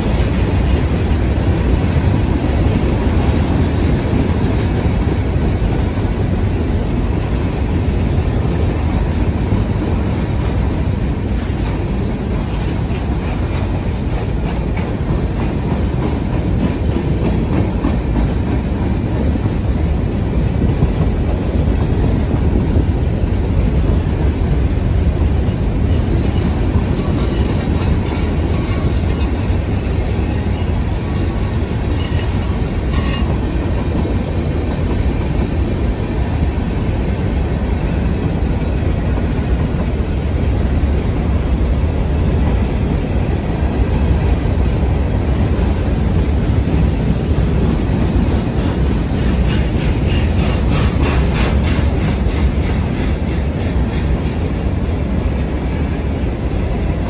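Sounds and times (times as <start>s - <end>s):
train wheels rumbling on rails: 0.0s - 57.0s
rapid clacking of wheels: 25.4s - 34.2s.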